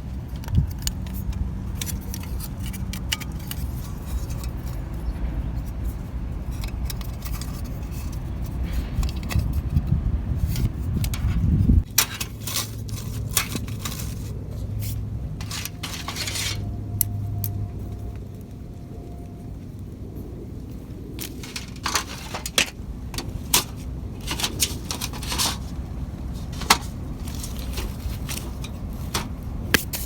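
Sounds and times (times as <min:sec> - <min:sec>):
metal gear clinking: 0:15.4 - 0:17.6.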